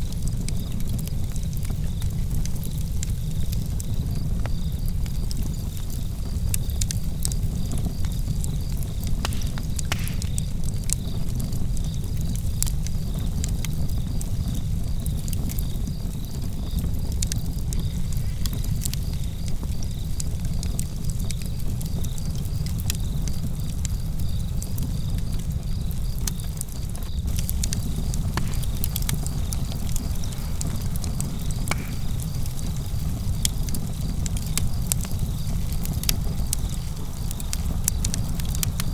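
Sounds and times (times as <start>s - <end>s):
campfire crackling and popping: 0.0s - 38.9s
crickets chirping: 1.8s - 38.9s.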